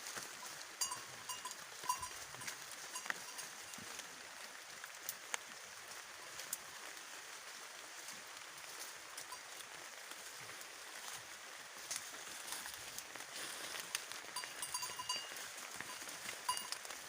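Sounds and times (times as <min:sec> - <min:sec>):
goat bells clinking: 0:00.2 - 0:04.0, 0:08.6 - 0:10.5, 0:11.8 - 0:17.0.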